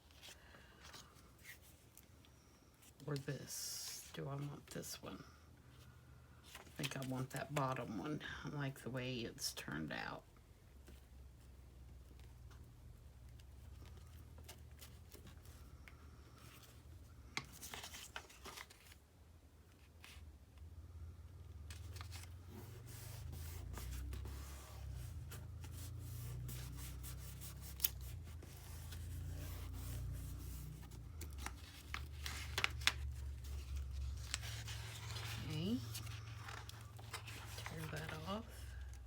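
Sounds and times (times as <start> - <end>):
low steady hum: 0.0 - 39.0
paper rustling and rubbing: 17.5 - 19.0, 21.7 - 38.8.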